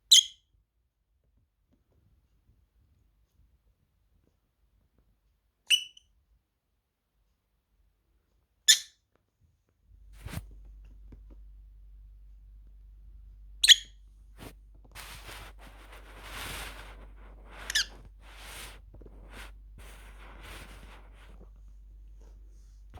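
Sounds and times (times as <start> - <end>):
soft scratching: 10.0 - 12.9, 13.8 - 22.9.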